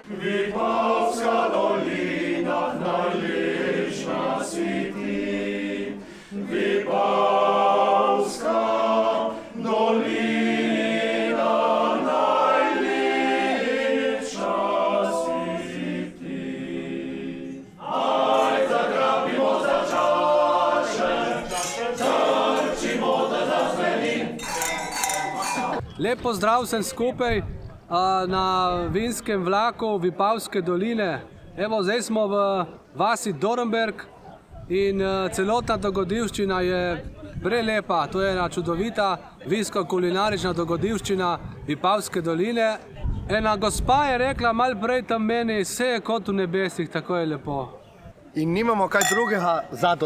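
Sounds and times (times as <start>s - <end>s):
men singing a cappella: 0.0s - 24.7s.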